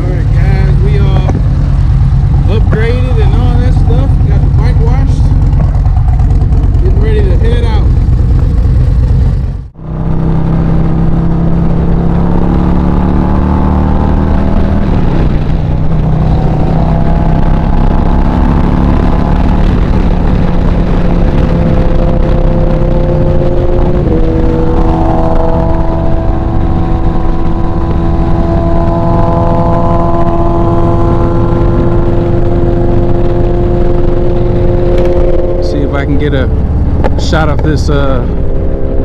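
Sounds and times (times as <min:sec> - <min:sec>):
motorcycle engine running: 0:00.0 - 0:39.0
wind rushing over microphone: 0:00.0 - 0:39.0.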